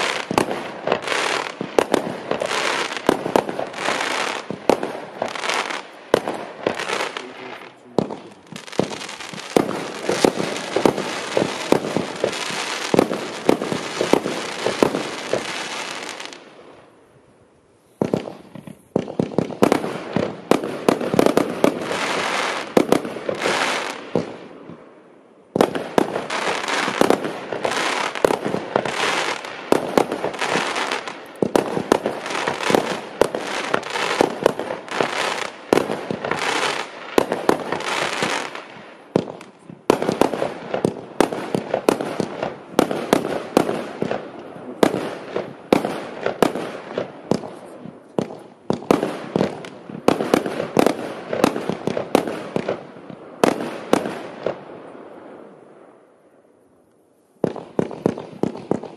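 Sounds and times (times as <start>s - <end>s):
fireworks launch thumps and bursts: 8.0s - 15.6s.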